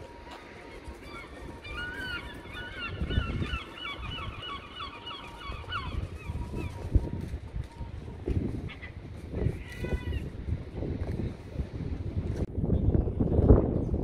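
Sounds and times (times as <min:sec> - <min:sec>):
bird calling rapid notes: 0:00.7 - 0:07.1.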